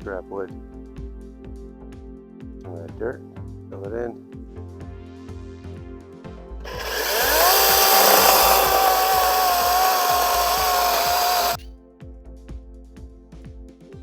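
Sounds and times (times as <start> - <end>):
music: 0.0 - 6.7, 11.2 - 14.0
power tool motor whining: 6.7 - 11.6.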